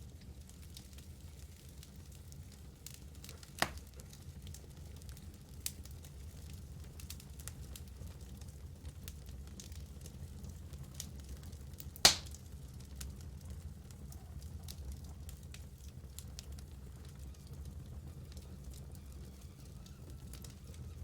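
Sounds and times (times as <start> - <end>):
wood fire crackling: 0.0 - 21.0
loud sharp pop of fire: 3.4 - 3.9, 12.0 - 12.5.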